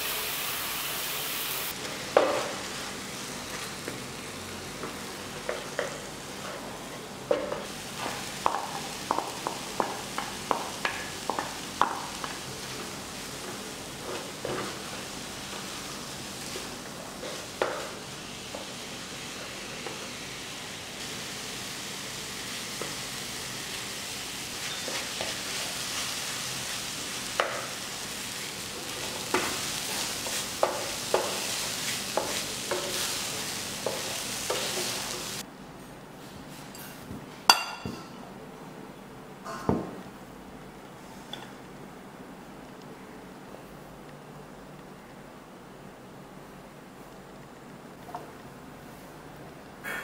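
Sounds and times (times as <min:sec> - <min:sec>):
food sizzling in a pan: 0:00.0 - 0:35.5
bowl clinking on a plate: 0:37.5 - 0:38.2.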